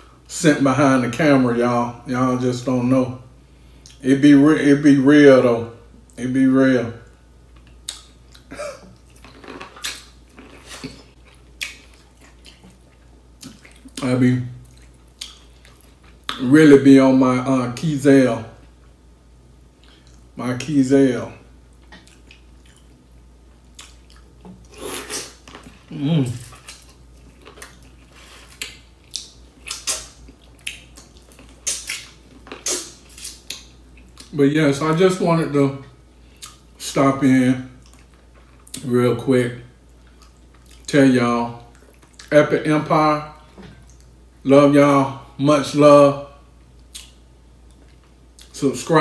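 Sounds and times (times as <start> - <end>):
man chewing and lip smacking: 7.5 - 16.4, 19.8 - 20.3, 21.7 - 34.4, 36.3 - 36.8, 37.8 - 38.9, 39.8 - 40.9, 41.6 - 42.3, 43.5 - 44.2, 46.6 - 48.6.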